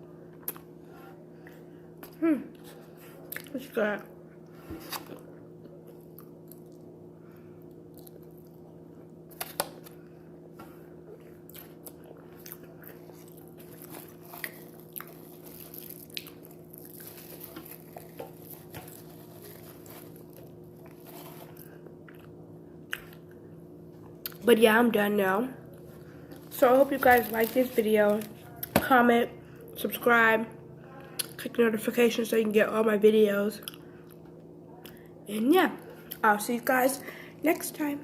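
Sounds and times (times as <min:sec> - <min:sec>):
steady low hum: 0:00.0 - 0:38.0
mouth chewing and smacking: 0:11.2 - 0:18.7.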